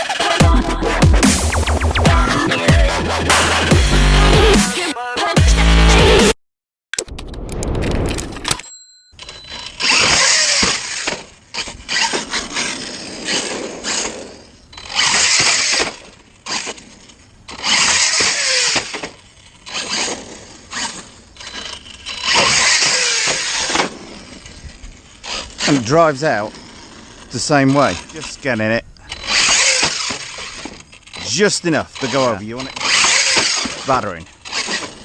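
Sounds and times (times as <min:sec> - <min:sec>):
rc truck motor revving: 0:09.6 - 0:35.0.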